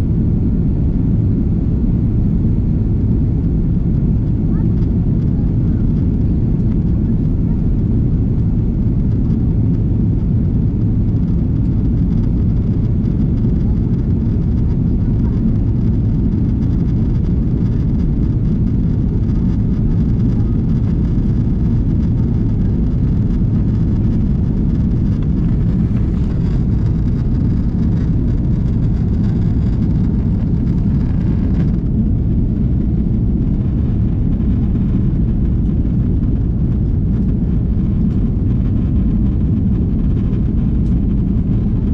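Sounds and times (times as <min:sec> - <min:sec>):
jet engine cabin rumble: 0:00.0 - 0:41.9.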